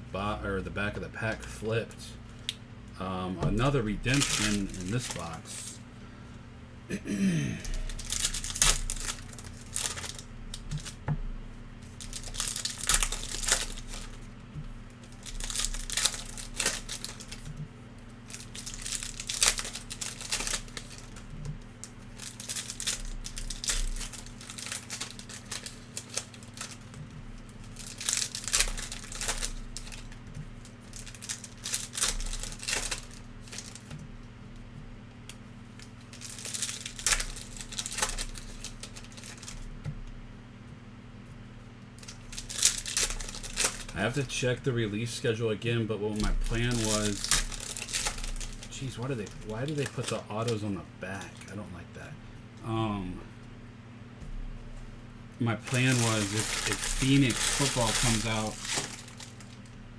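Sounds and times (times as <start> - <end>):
low electrical hum: 0.0 - 59.9
card pack wrappers tearing: 3.4 - 5.8, 7.6 - 11.0, 11.8 - 34.0, 35.8 - 39.7, 42.0 - 44.4, 46.2 - 51.6, 55.6 - 59.8
cards being handled: 3.4 - 5.8, 46.2 - 51.6, 55.6 - 59.7.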